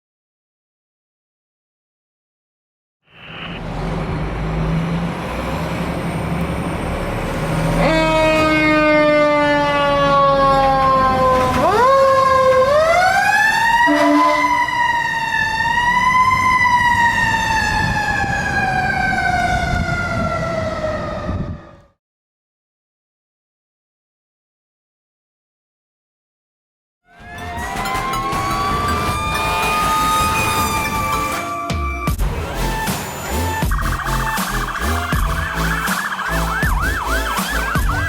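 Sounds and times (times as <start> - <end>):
truck engine rumble: 3.2 - 8.4, 27.2 - 38.0
fire engine siren: 5.6 - 22.0, 27.1 - 38.0.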